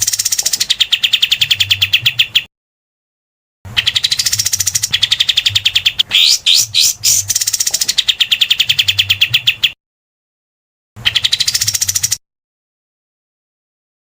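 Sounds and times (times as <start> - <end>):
bird rattling call: 6.0 - 8.3.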